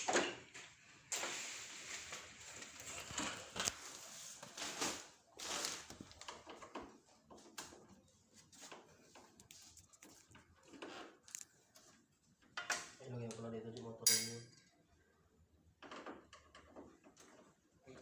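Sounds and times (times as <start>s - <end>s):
clicks and knocks of parts handled: 11.2s - 11.6s.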